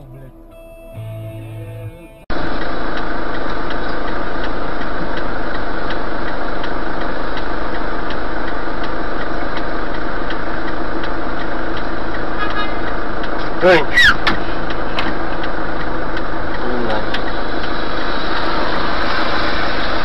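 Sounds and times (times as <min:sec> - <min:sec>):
car engine running: 0:01.0 - 0:20.0
light regular ticking: 0:02.3 - 0:18.3.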